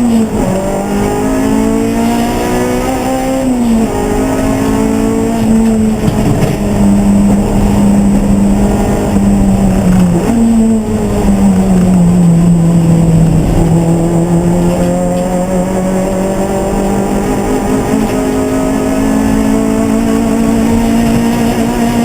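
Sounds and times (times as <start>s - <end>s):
race car engine running hard: 0.0s - 22.0s.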